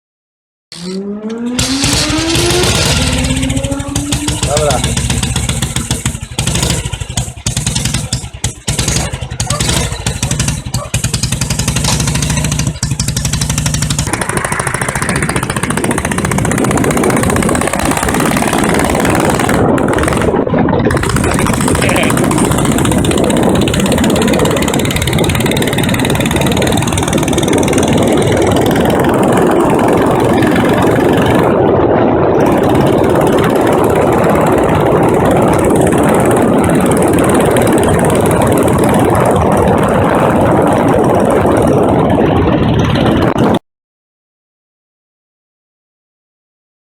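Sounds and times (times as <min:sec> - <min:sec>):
motorcycle engine chugging: 0:00.7 - 0:43.6
steady rushing noise: 0:01.3 - 0:43.6.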